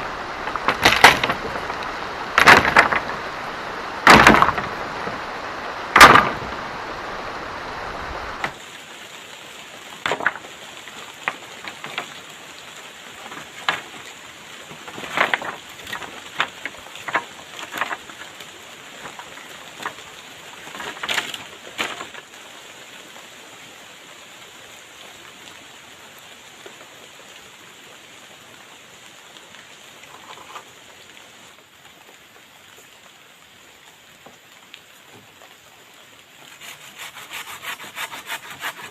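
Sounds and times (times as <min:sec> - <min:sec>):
steady rain: 0:00.0 - 0:38.9
wood knocking and snapping: 0:00.4 - 0:03.3, 0:04.0 - 0:05.2, 0:05.9 - 0:06.5, 0:10.0 - 0:10.4, 0:13.3 - 0:14.0, 0:14.8 - 0:18.2, 0:20.7 - 0:22.2.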